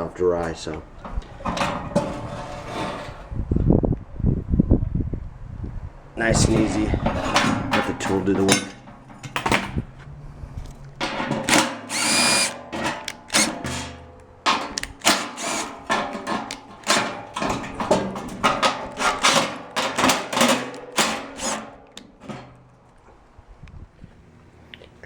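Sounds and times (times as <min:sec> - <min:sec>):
metal parts clanking: 0:00.4 - 0:03.4, 0:06.2 - 0:09.9, 0:10.7 - 0:22.5
drill whine: 0:11.5 - 0:12.6, 0:13.3 - 0:13.5.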